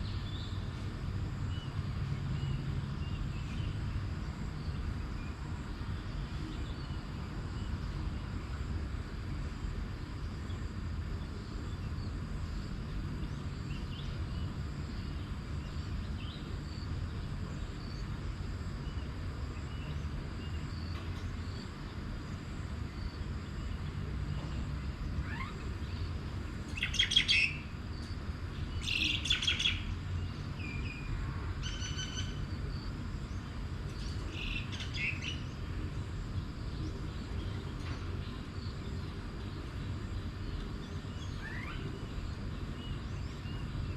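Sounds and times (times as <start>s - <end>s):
birds calling: 23.6s - 32.7s, 33.3s - 43.9s.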